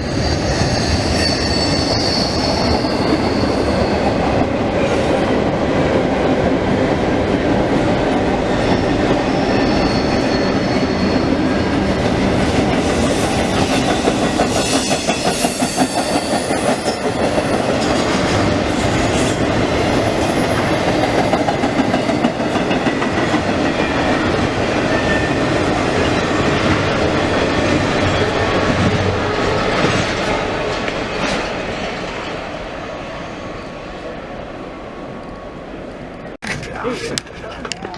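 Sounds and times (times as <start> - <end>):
wheel squeal: 0.0 - 4.3, 8.6 - 11.8, 12.8 - 18.1
train wheels rumbling on rail: 0.0 - 37.9.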